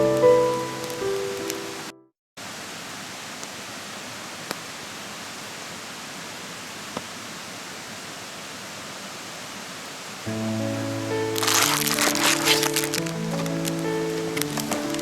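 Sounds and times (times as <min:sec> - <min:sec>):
mountain stream rushing: 0:00.0 - 0:15.0
short sharp cracks: 0:11.4 - 0:15.0.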